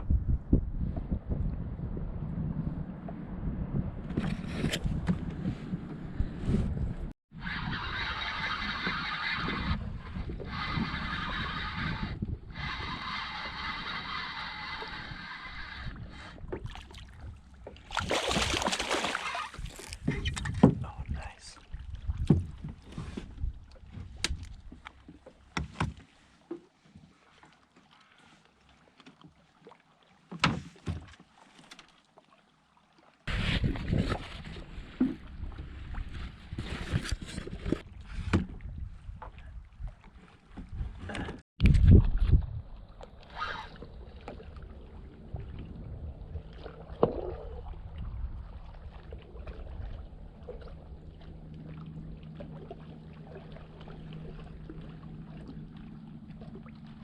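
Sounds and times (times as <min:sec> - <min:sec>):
water and wind noise: 0:00.0 - 0:57.0
water splashing: 0:10.4 - 0:25.6, 0:41.9 - 0:57.0.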